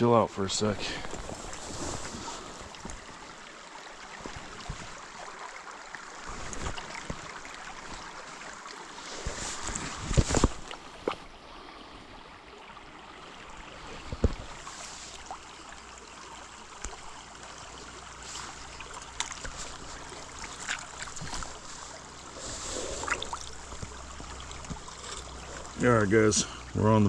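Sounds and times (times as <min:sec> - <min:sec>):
creek running over rocks: 0:00.0 - 0:27.0
light clicks and rustles: 0:06.1 - 0:11.3, 0:18.2 - 0:25.8.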